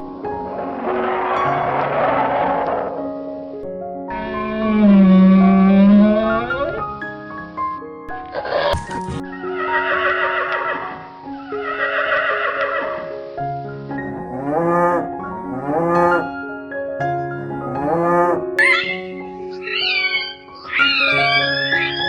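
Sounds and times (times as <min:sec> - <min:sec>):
background music with held notes: 0:00.0 - 0:22.0
cow mooing: 0:04.1 - 0:06.8, 0:14.2 - 0:16.3, 0:17.6 - 0:18.4.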